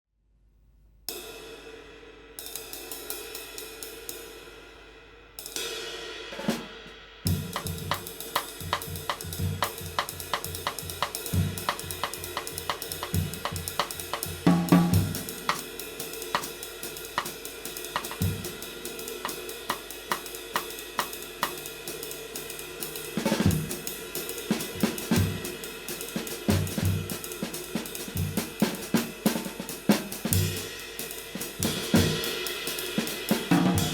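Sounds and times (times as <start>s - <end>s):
snare drum: 6.3s - 21.8s, 22.9s - 33.9s
bass drum: 6.6s - 15.6s, 17.1s - 18.6s, 26.5s - 27.3s.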